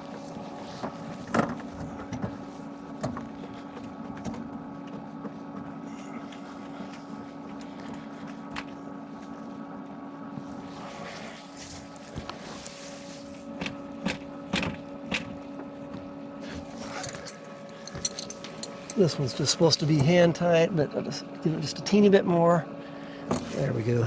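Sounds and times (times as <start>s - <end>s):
steady mechanical hum: 0.0s - 24.0s
tools clicking and knocking: 16.9s - 19.2s.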